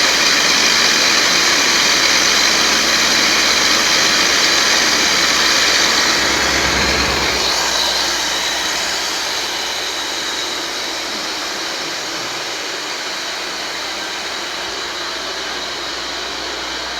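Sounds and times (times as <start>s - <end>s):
model aircraft motor whining: 0.2s - 11.3s.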